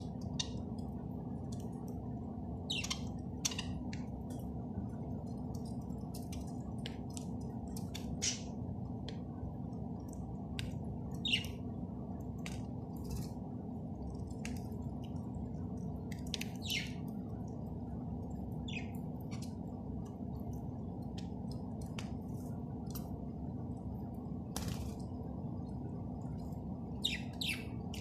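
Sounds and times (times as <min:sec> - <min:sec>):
low background hum: 0:00.0 - 0:28.0
pet bird chirping and squeaking: 0:02.7 - 0:03.8.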